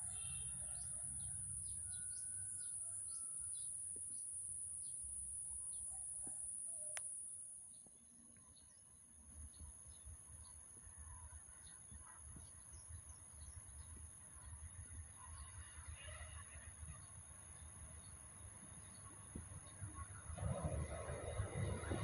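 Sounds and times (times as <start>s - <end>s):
high-pitched whine: 19.3s - 22.0s.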